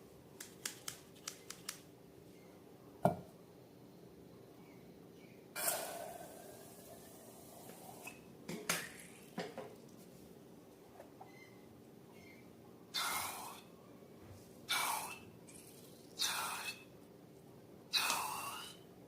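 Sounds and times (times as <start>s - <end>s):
knock against a bowl: 3.0s - 3.3s.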